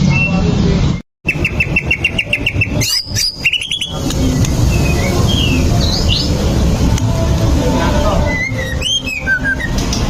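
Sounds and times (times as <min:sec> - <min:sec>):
bird singing: 0:01.3 - 0:06.4, 0:08.2 - 0:10.0.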